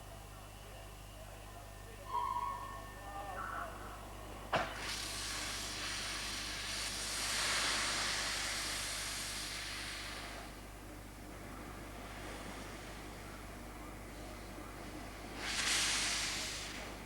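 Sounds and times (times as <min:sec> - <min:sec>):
steam hissing from locomotive: 0:04.6 - 0:10.8, 0:14.2 - 0:17.0.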